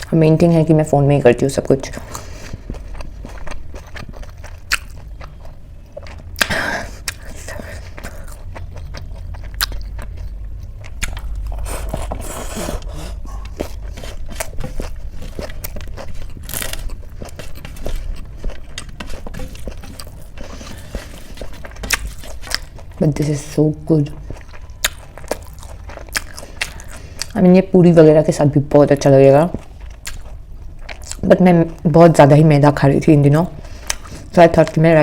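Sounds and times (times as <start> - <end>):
steady low hum: 0.0 - 34.8
food crunching: 1.8 - 27.5, 29.3 - 31.9
person chewing food: 1.9 - 27.4, 29.5 - 31.3, 33.6 - 34.3.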